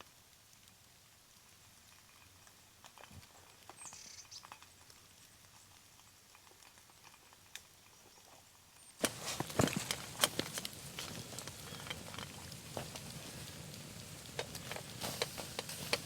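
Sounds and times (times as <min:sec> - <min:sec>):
faint clicks and taps: 0:09.0 - 0:16.0.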